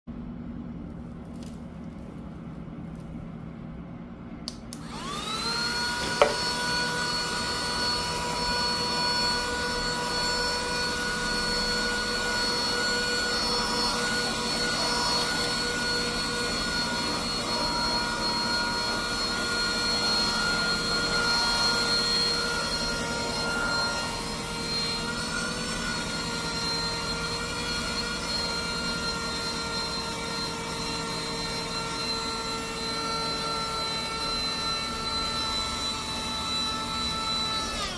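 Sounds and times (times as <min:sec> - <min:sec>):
vacuum cleaner switch click: 0:04.5 - 0:05.0, 0:06.0 - 0:06.5
vacuum cleaner motor whine: 0:04.5 - 0:37.9.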